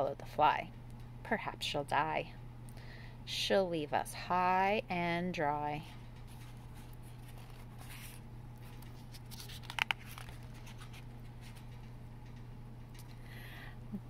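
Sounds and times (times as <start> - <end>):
low electrical hum: 0.0 - 14.0
book pages turning: 6.3 - 11.7.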